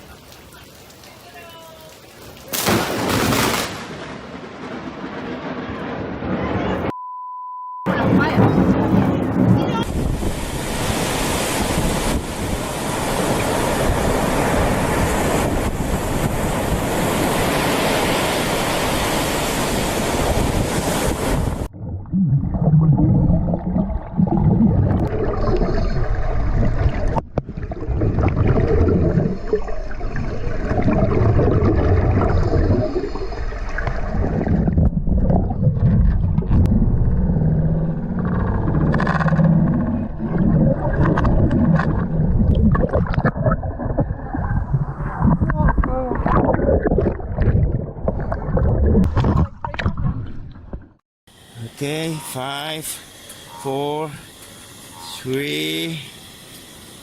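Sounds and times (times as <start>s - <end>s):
surf rumbling: 0.0s - 6.9s, 7.9s - 56.4s
wind buffeting microphone: 7.9s - 21.8s
rushing wind and water: 7.9s - 57.0s.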